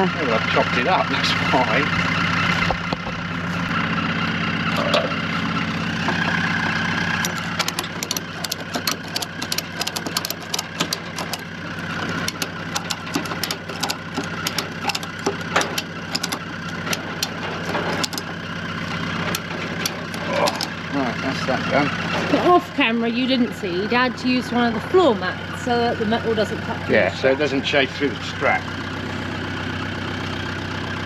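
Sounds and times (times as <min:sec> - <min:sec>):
vehicle engine idling: 0:00.0 - 0:31.0
sharp clicks and knocks: 0:06.0 - 0:20.8.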